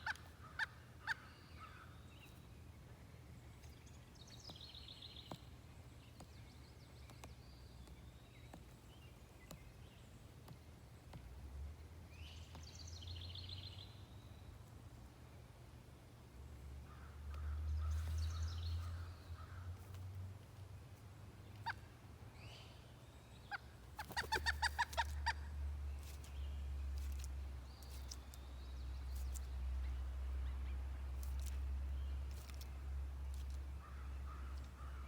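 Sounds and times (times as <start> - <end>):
woodpecker calling loudly: 23.4 - 25.5.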